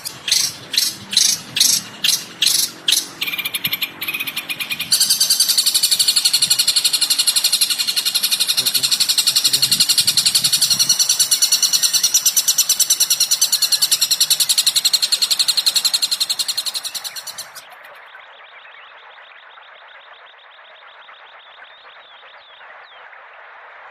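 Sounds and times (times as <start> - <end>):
fast trill of bird chirps: 0.0 - 18.1.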